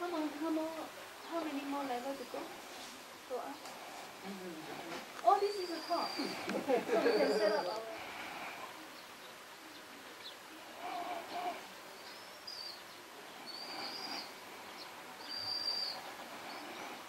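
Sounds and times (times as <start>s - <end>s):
faint room noise: 0.0s - 17.0s
bird chirping: 5.3s - 7.6s, 11.3s - 17.0s.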